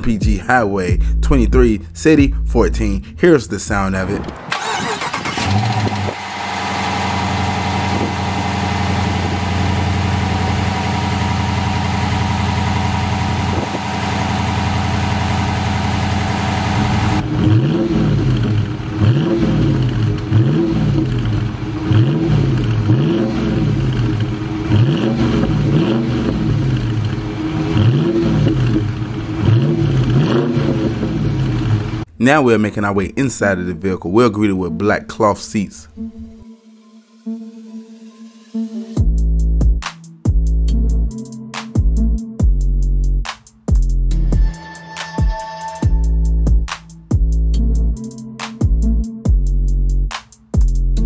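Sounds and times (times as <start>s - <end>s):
car engine starting and idling: 0.9s - 32.2s
car engine revving: 3.7s - 32.1s.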